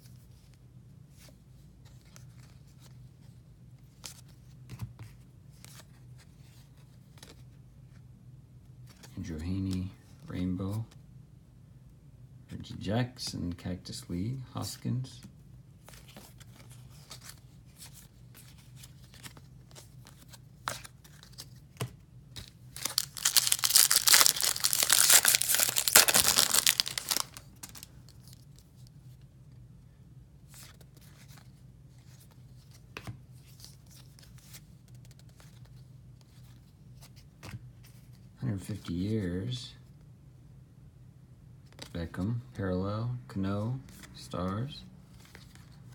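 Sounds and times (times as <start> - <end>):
cards clicking: 22.8 - 27.9
wrapper tearing and crinkling: 22.8 - 28.4.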